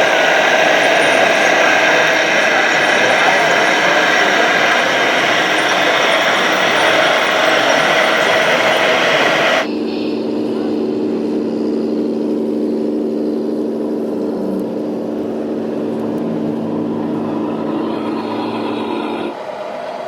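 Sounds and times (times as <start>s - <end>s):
loud hiss: 0.0s - 10.2s
small motors humming: 0.0s - 19.4s.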